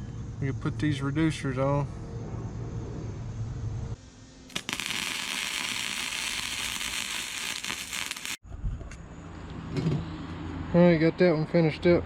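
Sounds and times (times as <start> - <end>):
arc welder crackling: 4.5 - 8.4.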